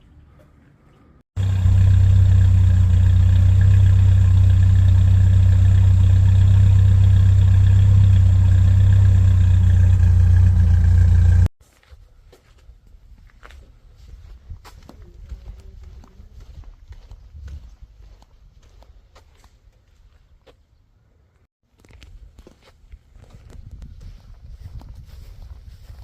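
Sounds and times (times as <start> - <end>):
car engine idling: 1.4 - 11.5.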